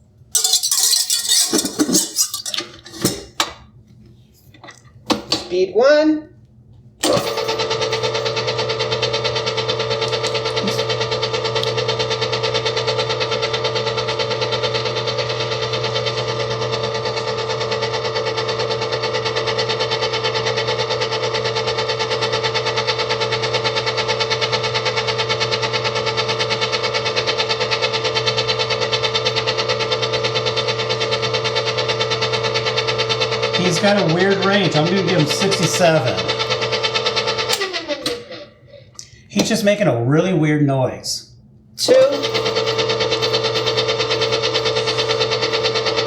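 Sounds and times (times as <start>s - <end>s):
stand mixer motor humming: 7.5s - 38.9s, 42.2s - 46.0s.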